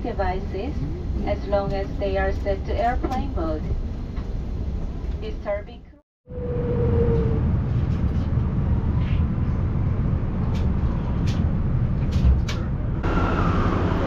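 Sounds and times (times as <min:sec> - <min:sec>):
vehicle rumbling in motion: 0:06.3 - 0:14.0.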